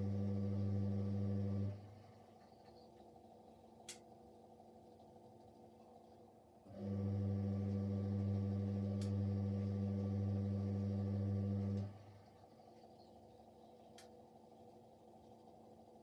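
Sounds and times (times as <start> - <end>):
washing machine humming: 0.0 - 2.3, 6.6 - 12.6.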